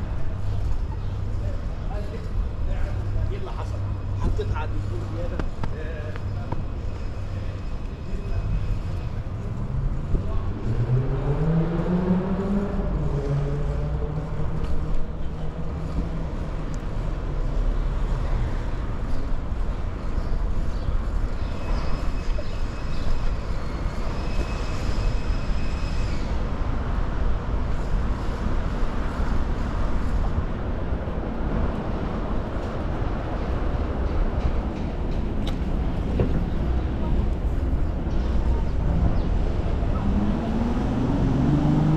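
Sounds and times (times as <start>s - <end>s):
road noise: 0.0s - 41.9s
high steady squeal: 21.5s - 26.5s
vehicle engine revving: 39.9s - 41.9s.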